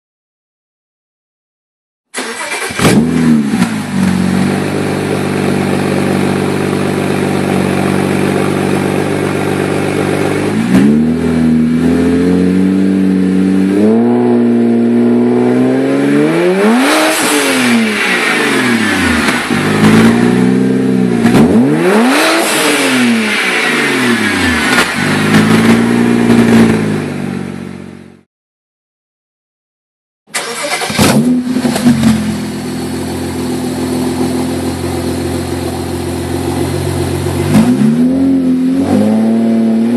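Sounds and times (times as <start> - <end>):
car engine idling and revving: 2.2 - 28.2, 30.4 - 39.9.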